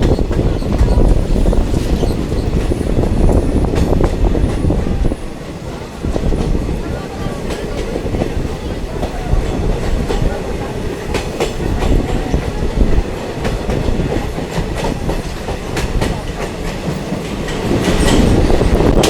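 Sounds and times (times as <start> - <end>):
train rumbling along track: 0.0 - 19.0
wheels clicking over rail joints: 11.0 - 19.0.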